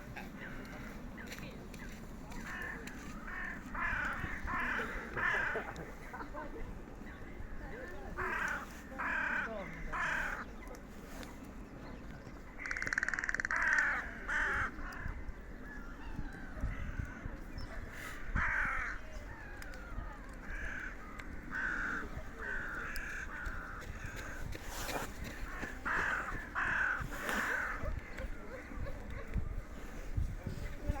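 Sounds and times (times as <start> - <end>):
birds cawing: 2.4 - 6.0, 8.2 - 10.5, 12.6 - 17.5, 18.2 - 24.6, 25.2 - 28.4.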